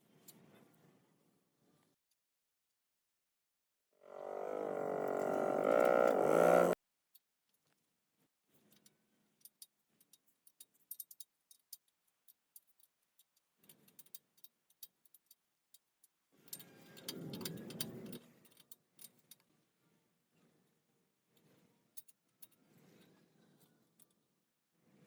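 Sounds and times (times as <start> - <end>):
low rubbing noise: 4.0 - 6.8.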